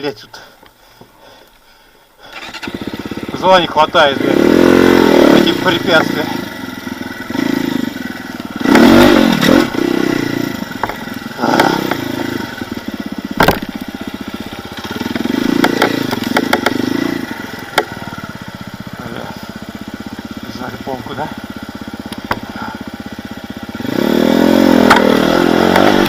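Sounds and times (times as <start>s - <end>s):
off-road vehicle engine revving: 2.2s - 26.0s
sharp knock: 13.4s - 13.7s.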